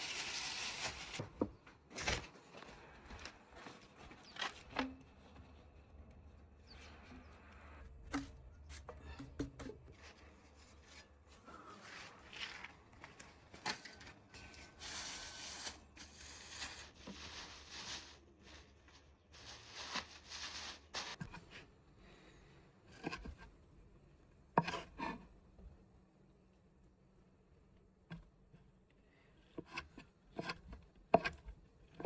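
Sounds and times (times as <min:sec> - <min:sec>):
rustling and scraping: 0:00.0 - 0:21.6.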